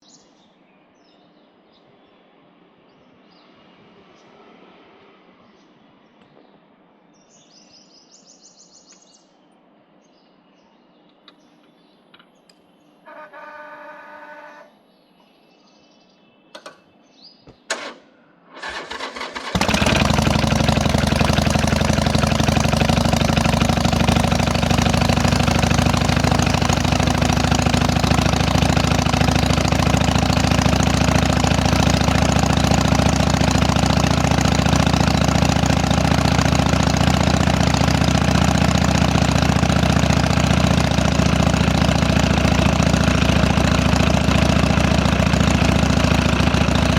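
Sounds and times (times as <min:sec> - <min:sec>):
motorcycle engine idling loudly: 0:13.1 - 0:14.7, 0:18.6 - 0:46.9
starter cranking: 0:18.6 - 0:46.9.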